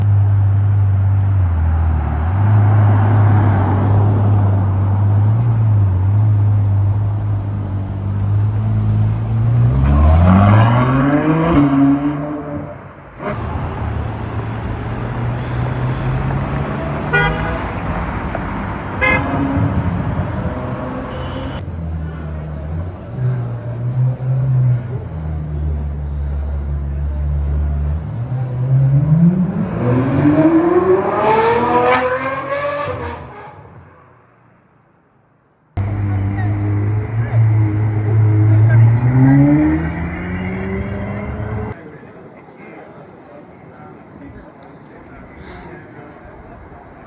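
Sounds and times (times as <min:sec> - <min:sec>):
sports car engine revving: 0:00.1 - 0:21.6, 0:22.6 - 0:33.4, 0:35.8 - 0:41.8
engine blips: 0:13.3 - 0:19.2, 0:35.8 - 0:41.8.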